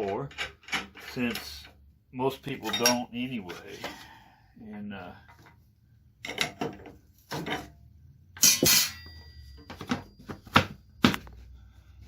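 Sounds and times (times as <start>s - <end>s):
metallic clanks and knocks: 0.0s - 1.7s, 6.2s - 7.8s, 8.4s - 11.3s
rattling metal clatter: 8.4s - 9.3s.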